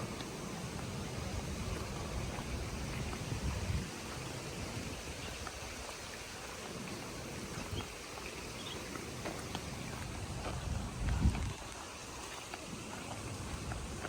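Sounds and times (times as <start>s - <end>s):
wind rumble on microphone: 0.0s - 6.4s, 9.8s - 12.3s
footsteps on a path: 0.0s - 14.0s
outdoor hiss: 0.0s - 14.0s.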